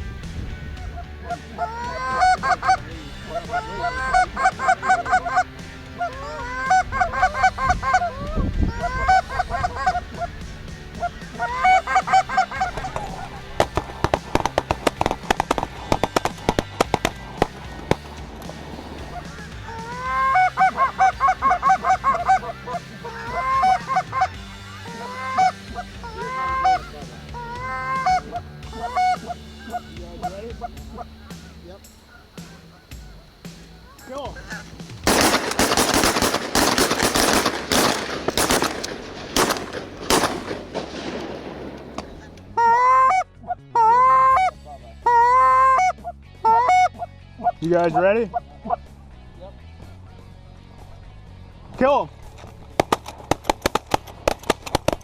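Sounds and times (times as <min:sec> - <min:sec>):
geese honking: 0:00.0 - 0:49.0
rapid sharp clicks: 0:11.3 - 0:22.4, 0:34.1 - 0:42.5, 0:52.8 - 0:55.0.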